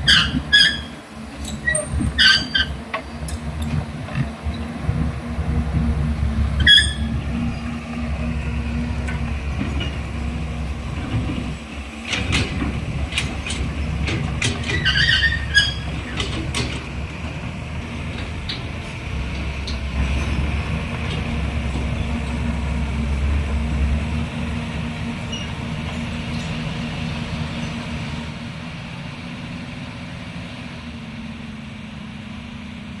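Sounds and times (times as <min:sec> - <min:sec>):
machinery squeal: 0:00.0 - 0:03.4, 0:06.6 - 0:08.6, 0:14.6 - 0:16.6, 0:25.2 - 0:28.0
excavator diesel engine running: 0:00.0 - 0:33.0
metal clanks: 0:10.9 - 0:22.5.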